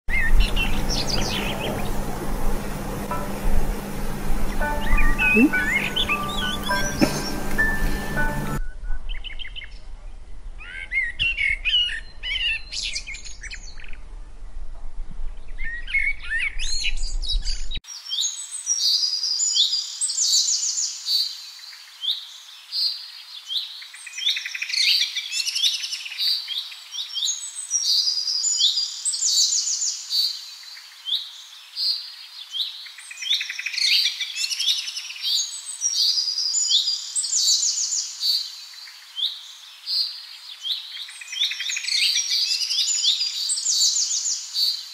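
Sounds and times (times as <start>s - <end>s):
birds chirping and trilling: 0.1s - 9.8s
low hum: 0.2s - 8.6s.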